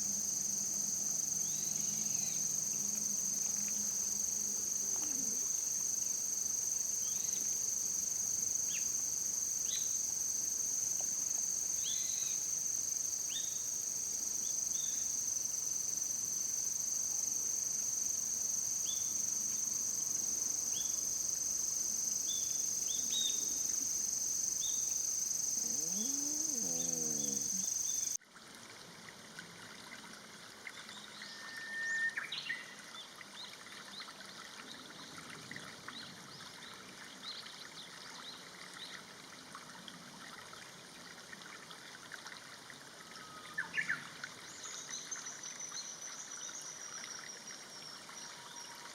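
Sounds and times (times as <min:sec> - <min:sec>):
insects chirring: 0:00.0 - 0:28.2
outdoor background noise: 0:00.0 - 0:48.9
lower animal call: 0:04.8 - 0:05.5, 0:25.5 - 0:28.2.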